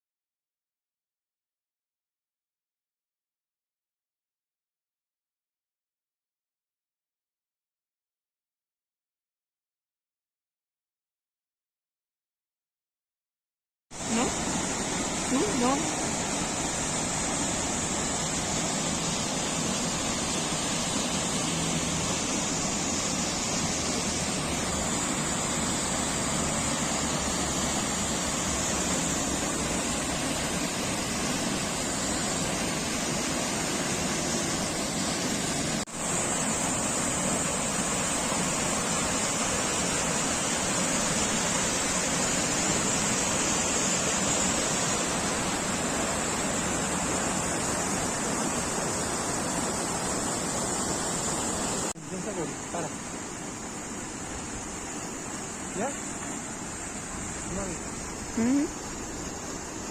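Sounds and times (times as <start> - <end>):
falling water rushing: 14.0 - 59.9.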